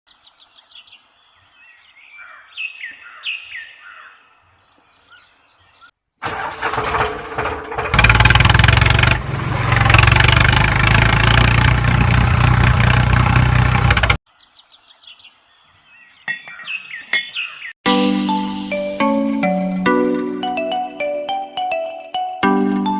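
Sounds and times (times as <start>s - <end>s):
birds chirping: 0.1s - 6.0s, 14.3s - 17.8s
diesel engine starting and running: 6.2s - 14.2s.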